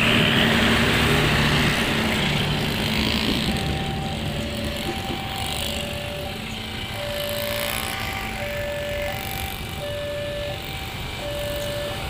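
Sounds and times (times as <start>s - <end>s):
train wheels rumbling: 0.0s - 12.0s
faint steady tones: 2.7s - 12.0s.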